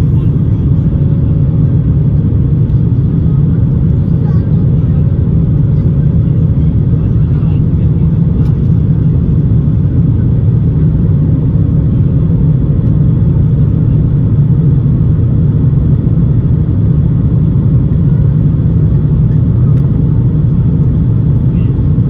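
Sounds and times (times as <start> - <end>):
aircraft cabin engine rumble: 0.0 - 22.0.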